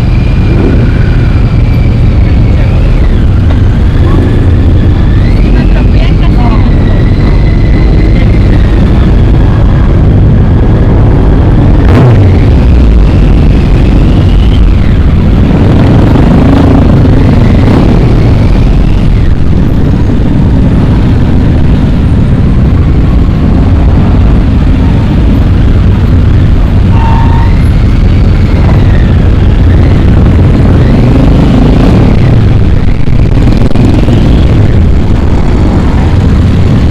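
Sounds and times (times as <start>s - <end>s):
motorcycle engine rumble: 0.0s - 36.9s
wind buffeting microphone: 0.0s - 36.9s.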